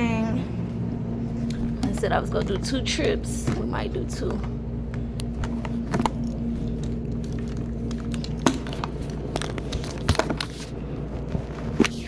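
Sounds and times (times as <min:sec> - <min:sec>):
steady low hum: 0:00.0 - 0:12.0
objects clicking and knocking: 0:05.4 - 0:10.7.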